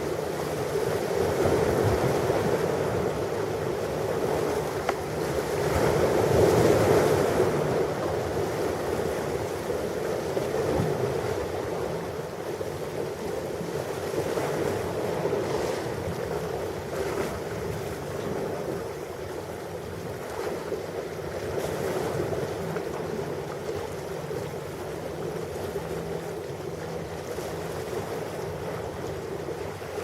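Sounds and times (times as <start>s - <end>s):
ocean waves breaking: 0.0s - 30.0s.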